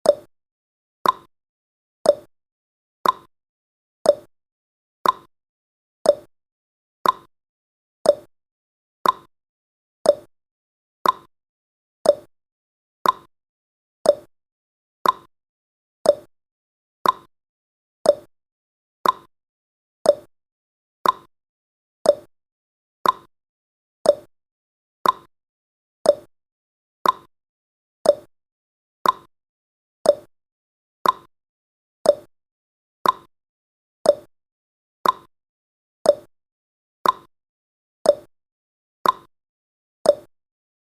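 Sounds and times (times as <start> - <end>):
timer ticking tick-tock: 0.0 - 0.3, 1.0 - 1.3, 2.0 - 2.3, 3.0 - 3.3, 4.0 - 4.3, 5.0 - 5.3, 6.0 - 6.3, 7.0 - 7.3, 8.0 - 8.3, 9.0 - 9.3, 10.0 - 10.3, 11.0 - 11.3, 12.0 - 12.3, 13.0 - 13.3, 14.0 - 14.3, 15.0 - 15.3, 16.0 - 16.3, 17.0 - 17.3, 18.0 - 18.3, 19.0 - 19.3, 20.0 - 20.3, 21.0 - 21.3, 22.0 - 22.3, 23.0 - 23.3, 24.0 - 24.3, 25.0 - 25.3, 26.0 - 26.3, 27.0 - 27.3, 28.0 - 28.3, 29.0 - 29.3, 30.0 - 30.3, 31.0 - 31.3, 32.0 - 32.3, 33.0 - 33.3, 34.0 - 34.3, 35.0 - 35.3, 36.0 - 36.3, 37.0 - 37.3, 38.0 - 38.3, 39.0 - 39.3, 40.0 - 40.4.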